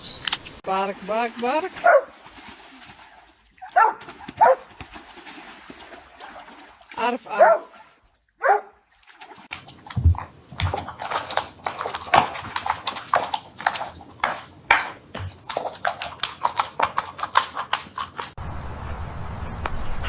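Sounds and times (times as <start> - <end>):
rapid clicking and tapping: 9.5 - 18.4.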